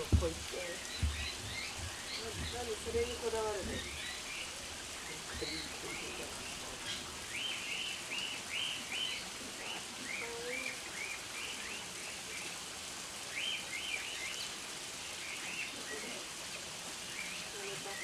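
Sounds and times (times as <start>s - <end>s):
small birds chirping: 0.0s - 12.6s, 13.2s - 16.3s
steady hiss: 0.0s - 18.0s.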